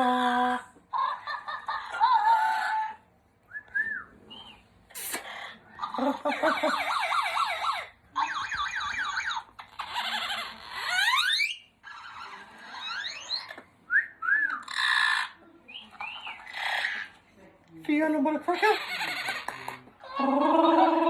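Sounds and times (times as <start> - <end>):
parrot chirps: 4.3 - 13.6, 14.5 - 17.2
parrot mimicking car alarm: 6.5 - 11.7.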